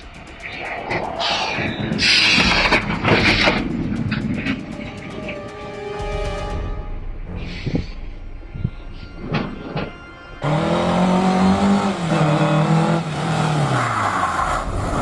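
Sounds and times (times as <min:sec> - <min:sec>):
vehicle engine running: 0:00.0 - 0:06.5.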